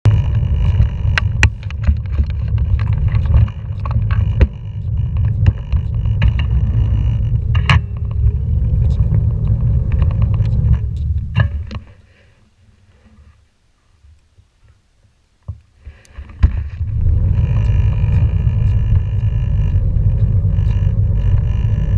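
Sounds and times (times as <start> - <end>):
scooter knocks and rattles: 0.1 - 8.3, 9.9 - 11.9
scooter wheels rumbling on pavement: 0.1 - 12.0, 16.3 - 21.9.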